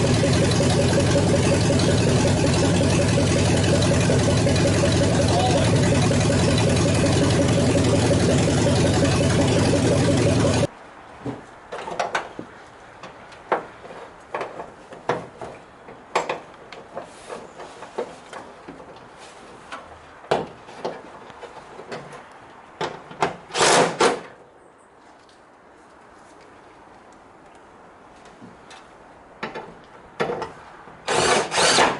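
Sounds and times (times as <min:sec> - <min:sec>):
truck engine running: 0:00.0 - 0:10.7.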